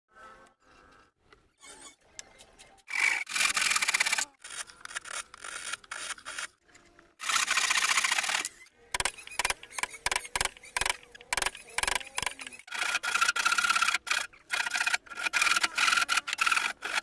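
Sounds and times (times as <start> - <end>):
wood sanding rasp: 9.1 - 17.0.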